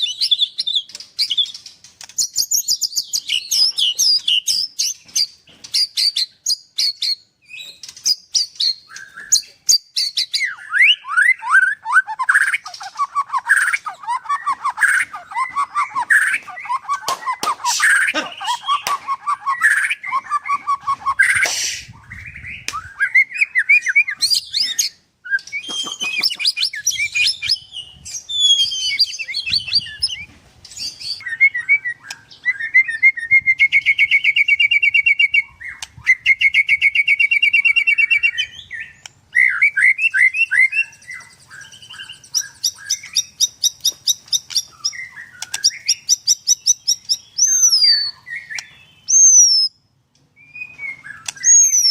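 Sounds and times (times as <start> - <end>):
songbird singing whistles and chatters: 0.0 - 51.9.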